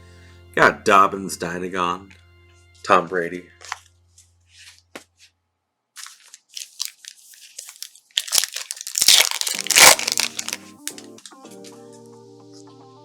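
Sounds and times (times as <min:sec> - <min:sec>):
soft background music: 0:00.0 - 0:04.6, 0:08.9 - 0:13.0
plastic wrapper crinkling and tearing: 0:06.0 - 0:11.4.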